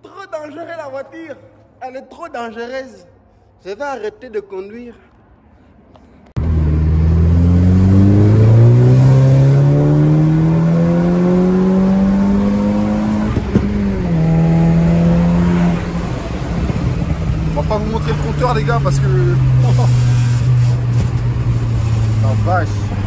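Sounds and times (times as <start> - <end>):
loud car engine accelerating: 6.4 - 23.0.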